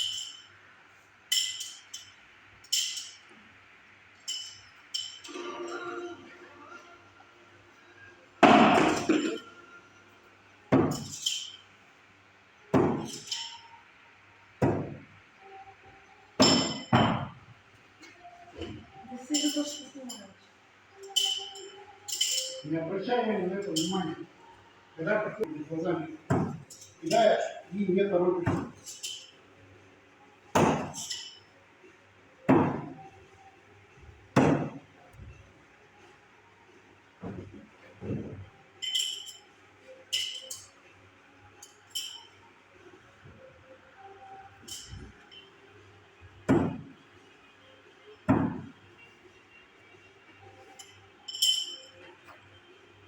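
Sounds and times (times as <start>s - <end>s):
light metallic clink: 0.0s - 0.5s, 1.3s - 3.3s, 4.2s - 5.3s, 21.0s - 22.6s, 38.8s - 39.5s, 40.1s - 40.8s, 41.6s - 42.4s, 50.7s - 52.1s.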